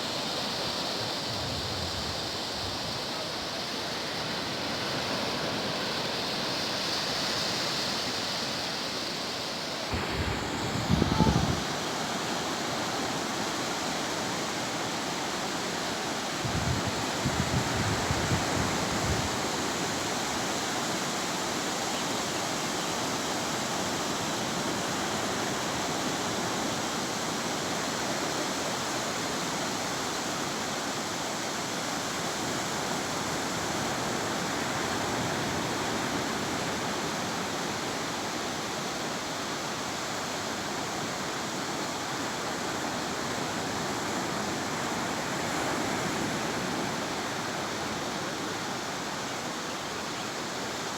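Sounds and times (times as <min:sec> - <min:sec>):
surf breaking on beach: 0:09.8 - 0:14.5.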